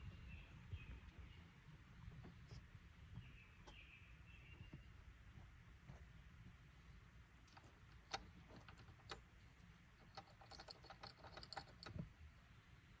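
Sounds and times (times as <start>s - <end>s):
plastic clip rattling: 10.0s - 12.0s.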